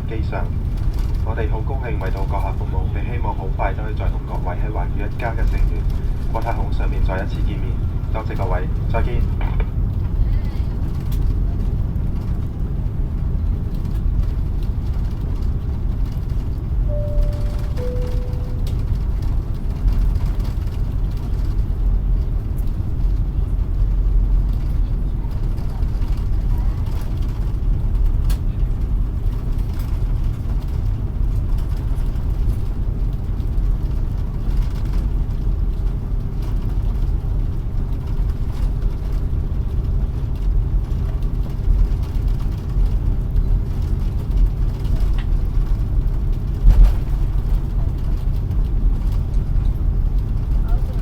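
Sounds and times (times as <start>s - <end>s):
airliner cabin low rumble: 0.0s - 51.0s
faint hum: 16.8s - 19.3s.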